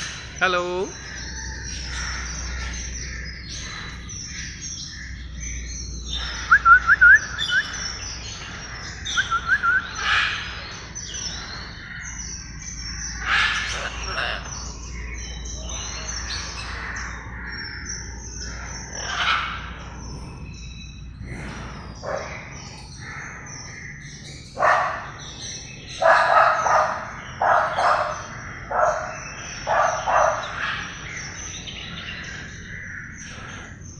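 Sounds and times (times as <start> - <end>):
parrot chirping: 6.2 - 10.8, 13.1 - 17.4.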